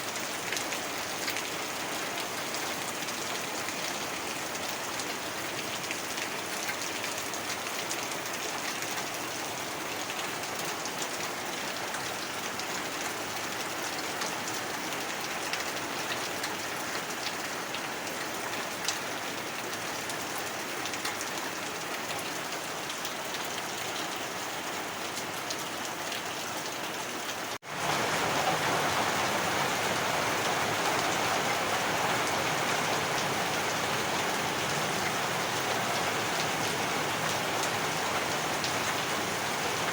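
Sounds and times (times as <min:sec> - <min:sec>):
heavy rain hissing: 0:27.6 - 0:39.9.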